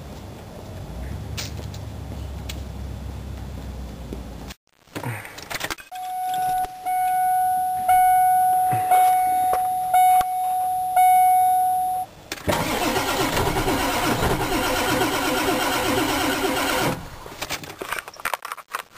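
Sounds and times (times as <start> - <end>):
electronic warning tone: 5.9 - 12.1
diesel engine starter cranking: 12.3 - 17.5.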